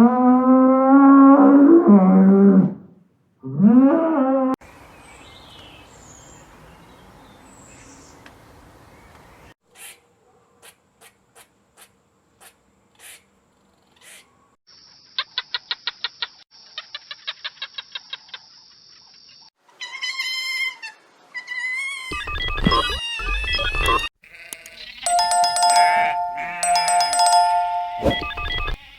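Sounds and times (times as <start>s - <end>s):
pitched animal call: 19.7s - 26.8s.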